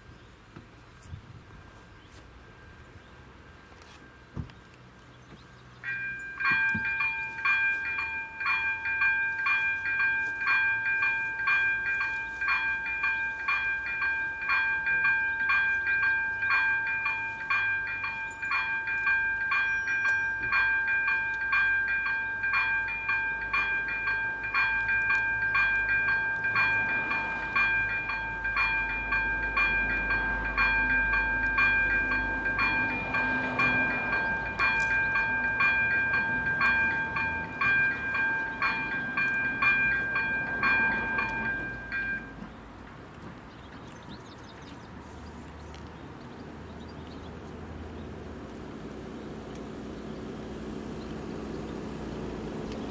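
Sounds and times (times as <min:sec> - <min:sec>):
low rumble of train: 0:00.0 - 0:52.9
level crossing warning bell: 0:05.8 - 0:42.6.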